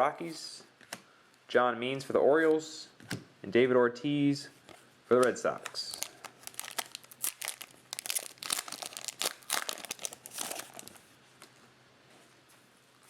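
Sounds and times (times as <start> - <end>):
foil wrapper crinkling and tearing: 5.6 - 11.0.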